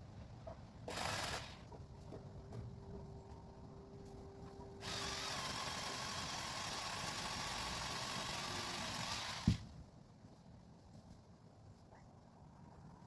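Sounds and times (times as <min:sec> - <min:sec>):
electric chainsaw cutting wood: 0:00.9 - 0:01.7, 0:04.8 - 0:09.6.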